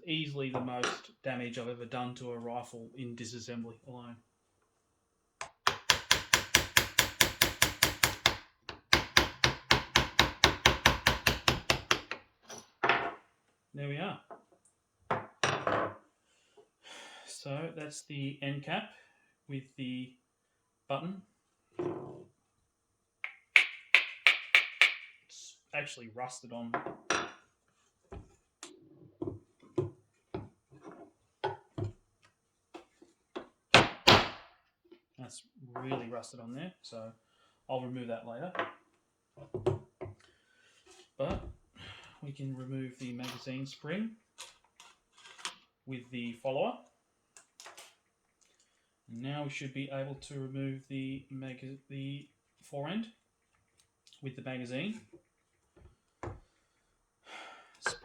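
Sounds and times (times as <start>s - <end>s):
rapid hammer taps: 5.4s - 12.2s, 23.2s - 25.1s
knocks and taps on metal cap: 23.2s - 25.1s.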